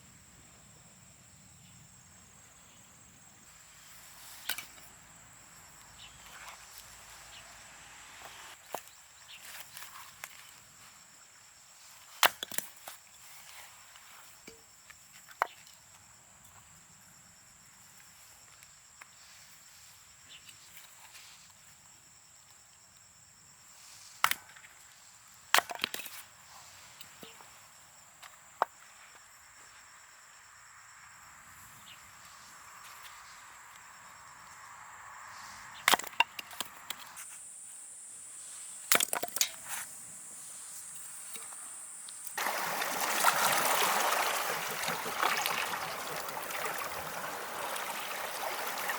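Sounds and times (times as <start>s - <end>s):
high insect trill: 26.2s - 48.9s
rushing water: 42.4s - 48.9s.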